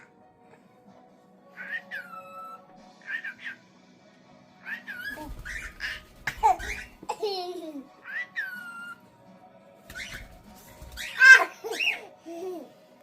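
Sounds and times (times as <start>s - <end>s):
cockatiels chirping and whistling: 1.6s - 3.6s, 4.6s - 7.0s, 8.0s - 9.0s, 9.9s - 12.1s.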